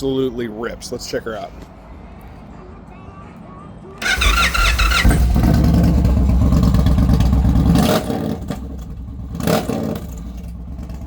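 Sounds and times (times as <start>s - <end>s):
motorcycle engine revving: 4.0s - 11.0s.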